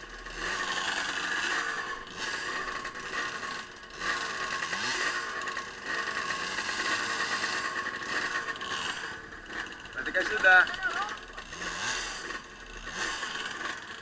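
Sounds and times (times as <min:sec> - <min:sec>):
off-road vehicle engine: 0:00.0 - 0:14.0.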